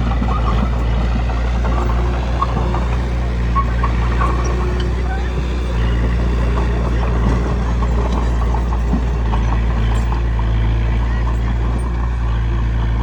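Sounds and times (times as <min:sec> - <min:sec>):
bulldozer diesel engine running: 0:00.0 - 0:13.0
short clicks and squeaks: 0:01.7 - 0:10.3.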